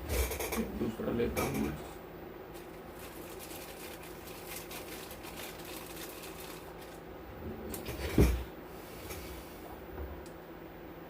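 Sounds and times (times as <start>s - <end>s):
small parts clicking and rustling: 2.6s - 7.0s.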